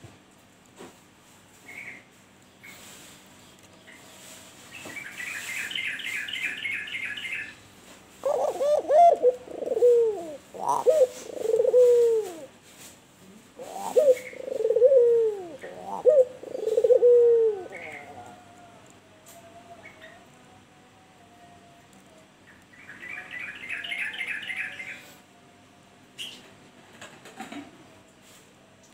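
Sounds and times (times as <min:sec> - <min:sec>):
dove cooing: 0:08.2 - 0:12.6, 0:13.2 - 0:20.4.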